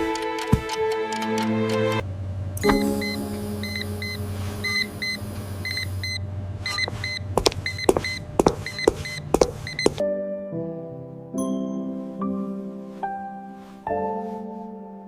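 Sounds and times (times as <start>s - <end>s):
soft music: 0.0s - 2.0s, 2.6s - 5.7s, 10.0s - 15.0s
machine hum: 1.3s - 9.9s
short high electronic beeps: 3.0s - 9.8s.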